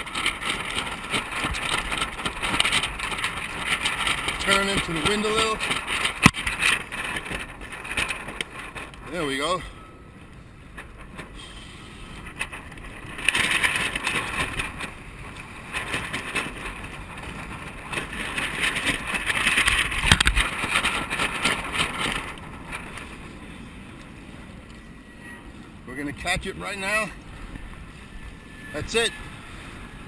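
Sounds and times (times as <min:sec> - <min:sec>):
water rushing along a hull: 0:00.0 - 0:30.0
wind on microphone: 0:00.0 - 0:30.0.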